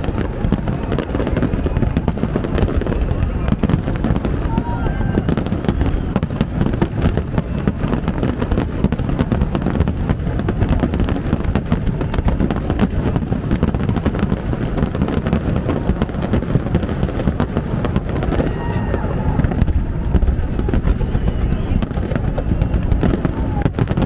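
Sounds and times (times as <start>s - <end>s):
fireworks bangs: 0.0s - 24.0s.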